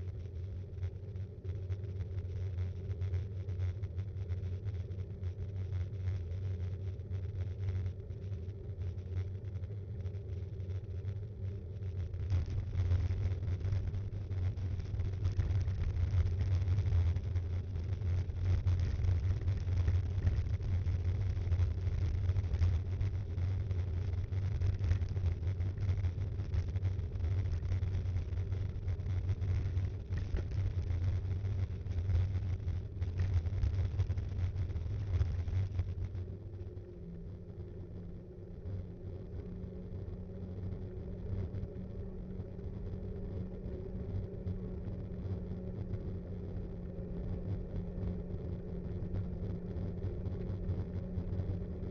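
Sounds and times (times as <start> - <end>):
wind and tyres rumbling on road: 0.0 - 51.9.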